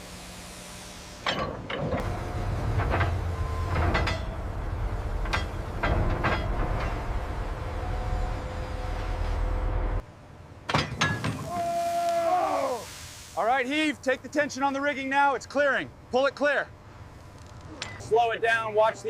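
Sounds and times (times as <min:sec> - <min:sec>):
metal clanks and knocks: 0:01.2 - 0:08.0, 0:10.6 - 0:11.5
machinery deep rumble: 0:01.8 - 0:10.1.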